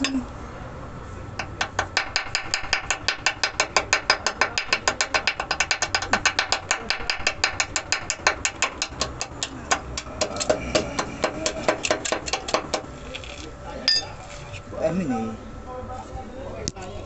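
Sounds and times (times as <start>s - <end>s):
rapid mechanical clicking: 1.4s - 12.9s.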